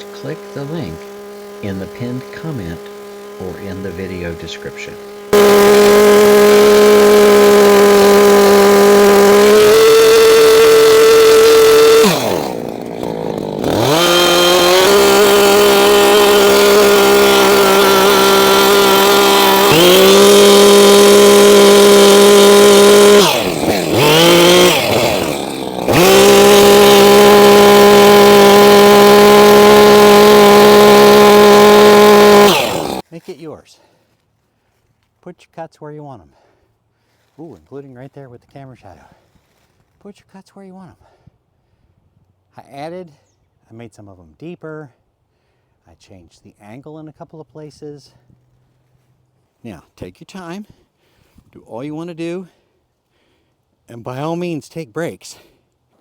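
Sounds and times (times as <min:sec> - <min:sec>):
chainsaw cutting log: 0:00.0 - 0:33.1, 0:54.0 - 0:55.5.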